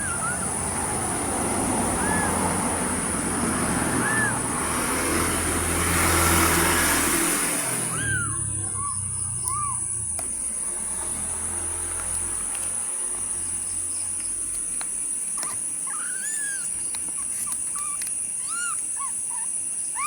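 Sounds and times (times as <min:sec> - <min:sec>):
kittens meowing: 0:00.0 - 0:10.5, 0:15.3 - 0:20.0.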